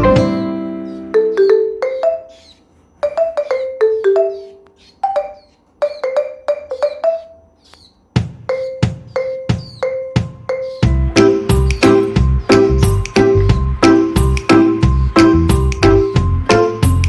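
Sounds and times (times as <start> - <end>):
mallet percussion melody: 0.0 - 2.3, 3.0 - 5.3, 8.4 - 17.0
deep drum beat: 8.2 - 17.0.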